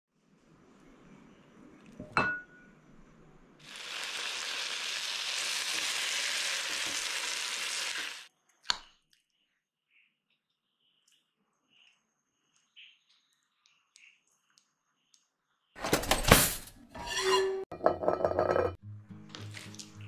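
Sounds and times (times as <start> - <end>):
chicken frying in oil: 3.6 - 8.3.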